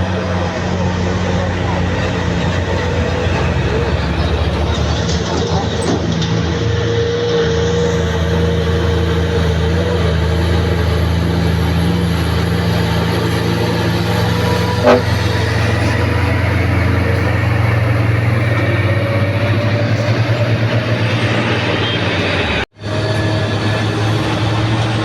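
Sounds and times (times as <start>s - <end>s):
truck engine droning: 0.0s - 25.0s
toot: 13.7s - 18.9s.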